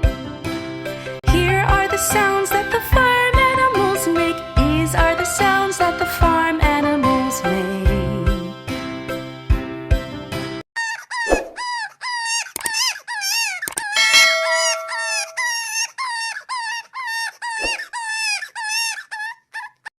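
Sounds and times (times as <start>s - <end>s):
chime-like chord: 14.0s - 15.6s.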